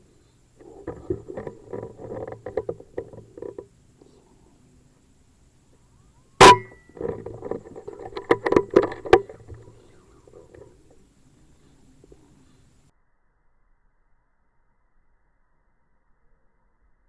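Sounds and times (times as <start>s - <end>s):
rustling: 0.0s - 12.9s
air rifle shot with metallic ring: 6.4s - 6.9s.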